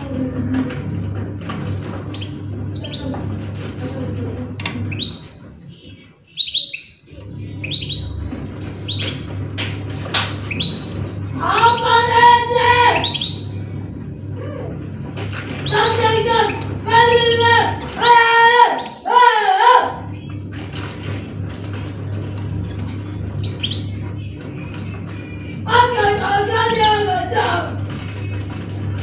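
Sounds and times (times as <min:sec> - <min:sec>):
cage birds chirping: 0:00.0 - 0:29.0
steady low hum: 0:00.0 - 0:29.0
high-pitched voice calling: 0:11.4 - 0:13.4, 0:15.7 - 0:20.1, 0:25.7 - 0:27.8.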